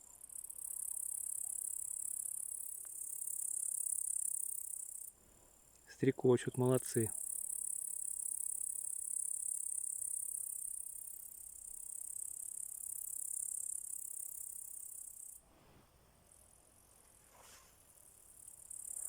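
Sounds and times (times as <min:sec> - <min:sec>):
grasshoppers chirring: 0:00.0 - 0:05.1, 0:06.6 - 0:15.4, 0:18.0 - 0:19.0
faint soft rustles: 0:16.9 - 0:18.0.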